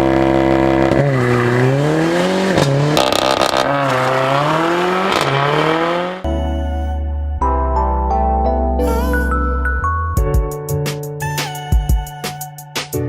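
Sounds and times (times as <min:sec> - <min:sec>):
car engine revving: 0:00.0 - 0:06.3.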